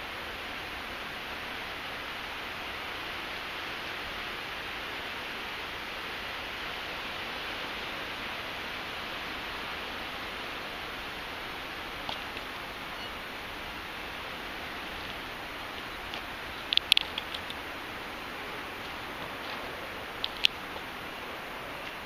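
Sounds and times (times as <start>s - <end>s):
road noise: 0.0s - 22.0s
rushing wind: 0.0s - 22.0s
faint clicks: 15.0s - 17.6s, 20.2s - 20.9s.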